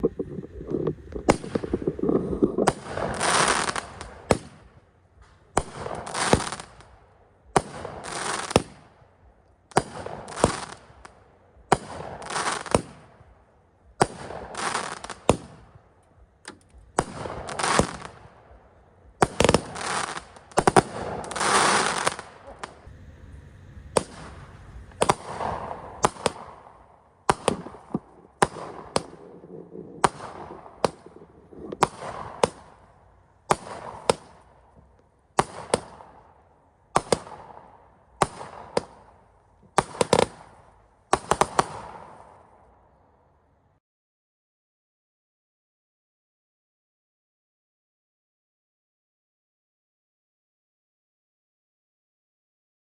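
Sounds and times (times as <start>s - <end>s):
fireworks bangs: 0.0s - 9.0s, 9.7s - 13.3s, 16.9s - 42.6s.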